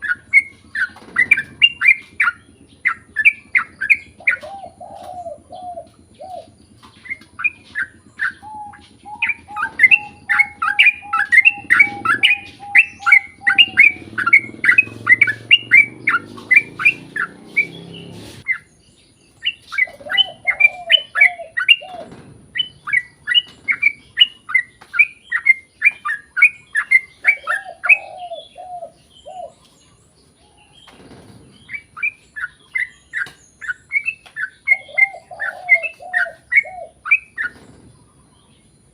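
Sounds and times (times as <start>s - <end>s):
lower arched bird notes: 0.0s - 30.6s
bird singing rapid chirps: 0.0s - 38.9s.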